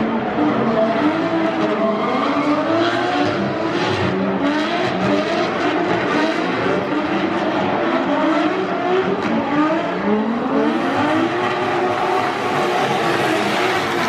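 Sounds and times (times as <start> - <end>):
car engines revving hard: 0.0 - 14.0.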